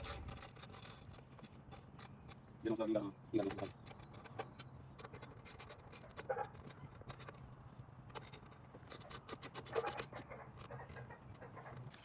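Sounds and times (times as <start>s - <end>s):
socket wrench clicking: 8.1s - 11.1s.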